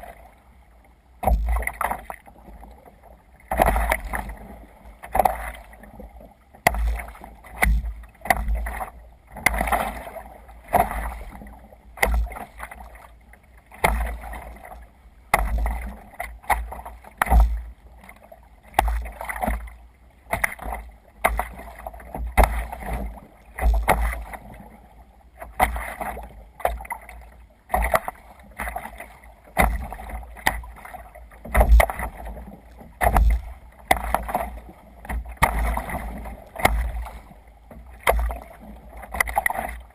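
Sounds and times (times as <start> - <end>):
water splashing around kayak: 0.0 - 39.9
low thumps: 33.0 - 33.6.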